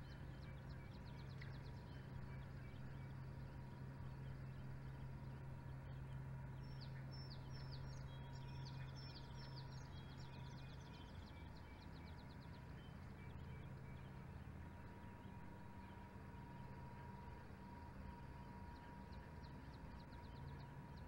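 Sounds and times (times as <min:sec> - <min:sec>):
small bird singing: 0:06.6 - 0:14.2.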